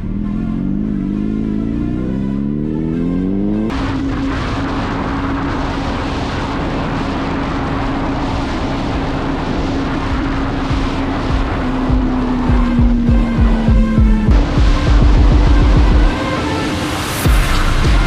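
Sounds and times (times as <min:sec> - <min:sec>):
motorcycle engine revving: 0:00.0 - 0:18.0
wind noise: 0:03.7 - 0:18.0.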